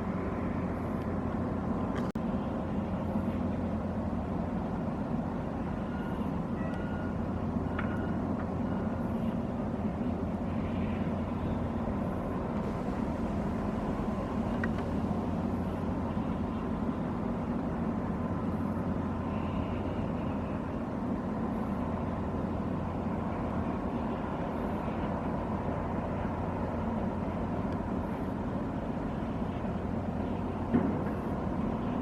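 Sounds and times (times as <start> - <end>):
diesel engine rumble: 12.4 - 18.3.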